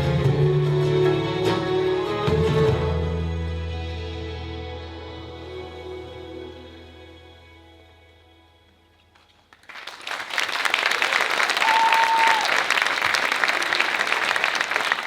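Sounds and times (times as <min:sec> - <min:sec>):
music: 0:00.0 - 0:09.6
audience applauding: 0:09.5 - 0:15.0.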